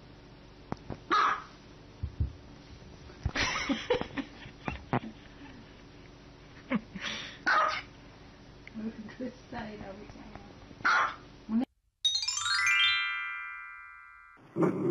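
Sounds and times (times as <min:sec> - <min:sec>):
small dog yapping: 0:01.1 - 0:01.5, 0:07.4 - 0:07.9, 0:10.8 - 0:11.2.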